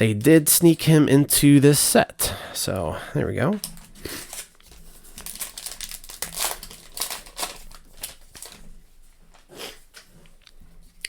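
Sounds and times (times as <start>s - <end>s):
card pack wrapper crinkling: 3.5s - 8.7s.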